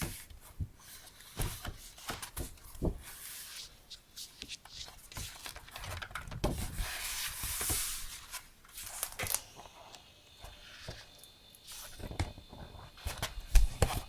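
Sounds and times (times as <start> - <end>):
paper rustling: 0.0 - 9.5.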